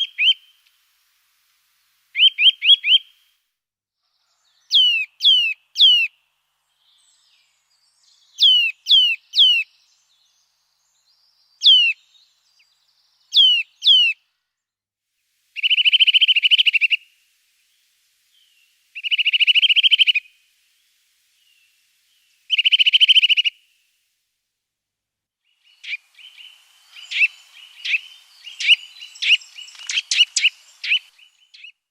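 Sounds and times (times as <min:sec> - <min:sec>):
songbird whistled calls: 0:00.0 - 0:00.6, 0:02.1 - 0:03.2, 0:04.3 - 0:14.2, 0:15.6 - 0:23.9, 0:25.4 - 0:31.9
songbird rattling trills: 0:15.6 - 0:23.9, 0:25.5 - 0:31.8.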